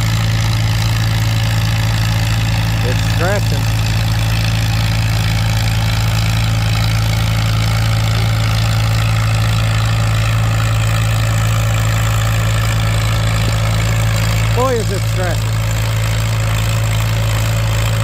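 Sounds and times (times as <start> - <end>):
tractor engine under heavy load: 0.0 - 18.0.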